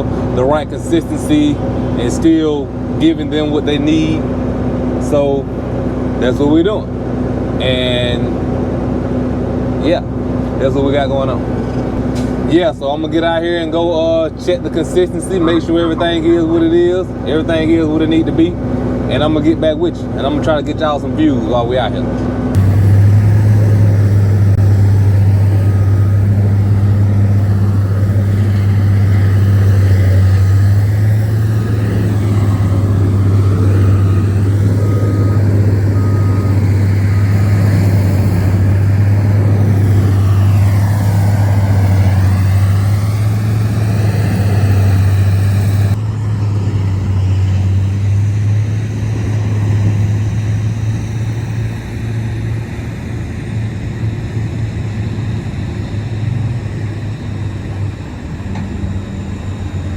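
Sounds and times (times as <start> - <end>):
diesel truck engine idling: 0.0 - 59.9
faint high beep: 33.7 - 37.7.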